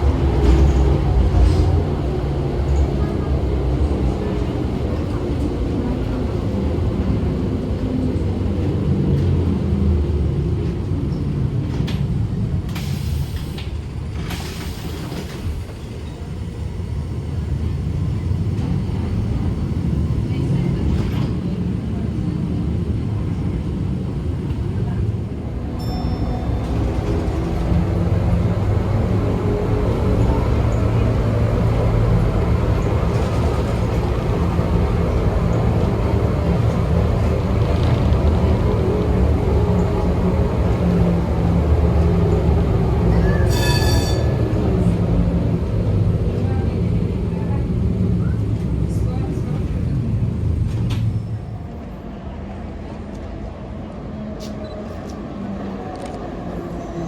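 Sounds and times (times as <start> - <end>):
tram rumbling on rails: 0.0 - 57.0.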